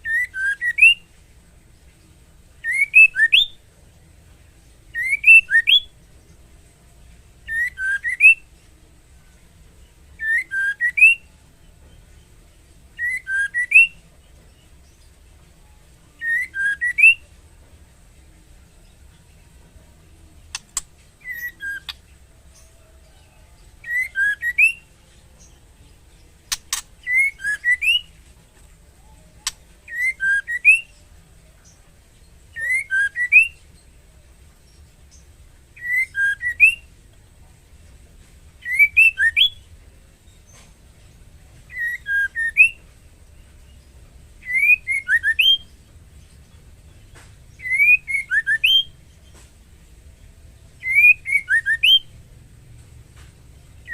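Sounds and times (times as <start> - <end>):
sharp clicks: 20.5 - 21.0, 26.5 - 27.0
bird whistled call: 21.2 - 22.0, 32.6 - 33.6, 38.6 - 39.6, 41.7 - 42.8, 44.4 - 45.7, 47.6 - 49.0, 50.8 - 52.1.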